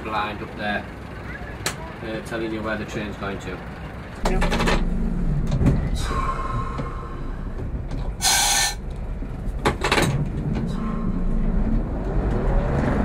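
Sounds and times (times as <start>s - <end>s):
diesel engine idling: 0.0s - 13.0s
loud air hiss: 8.2s - 8.8s.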